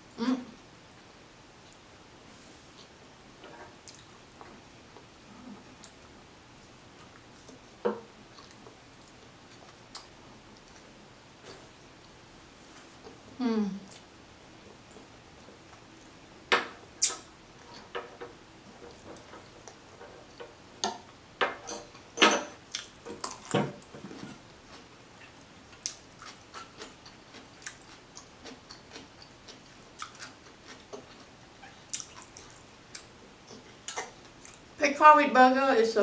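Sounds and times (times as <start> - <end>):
chewing crunches: 22.7 - 34.7.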